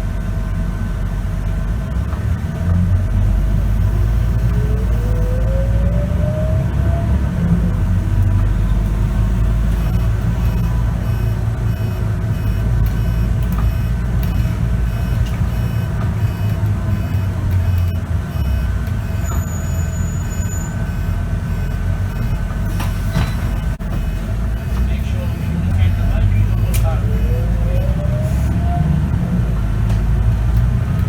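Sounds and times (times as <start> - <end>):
bus engine rumble and whine: 0.0 - 31.0
short high beeps: 3.4 - 5.4, 9.0 - 28.6.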